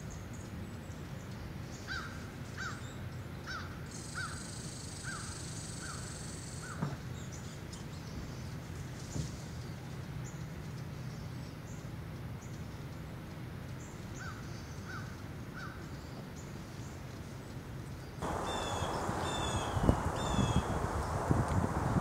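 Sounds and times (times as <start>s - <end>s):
bird calling in high notes: 18.2s - 21.3s
distant bird falling calls: 18.2s - 22.0s
faint high bird chirps: 18.2s - 22.0s
hiss: 18.2s - 22.0s
low steady rumble: 18.2s - 22.0s.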